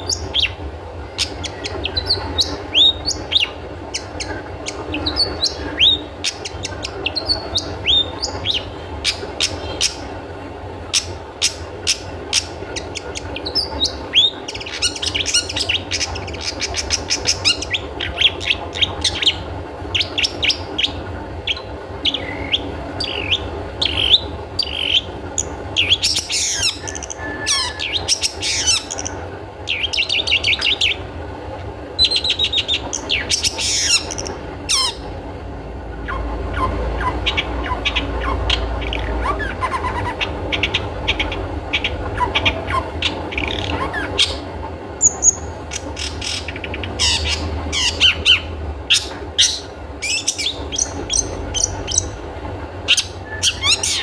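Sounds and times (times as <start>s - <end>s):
bird calling sharp notes: 10.8s - 31.1s, 32.0s - 35.2s, 35.9s - 52.2s.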